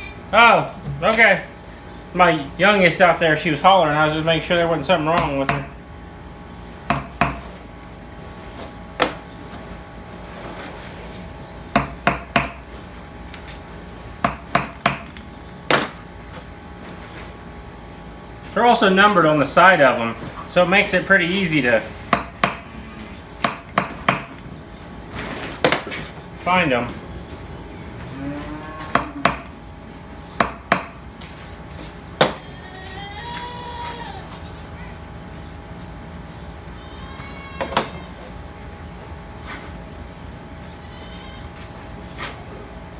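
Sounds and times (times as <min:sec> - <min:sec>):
hammer striking metal: 0:05.2 - 0:05.8, 0:06.9 - 0:07.6, 0:11.8 - 0:12.7, 0:14.3 - 0:15.2, 0:22.2 - 0:22.7, 0:23.4 - 0:24.4, 0:29.0 - 0:29.5, 0:30.4 - 0:31.0.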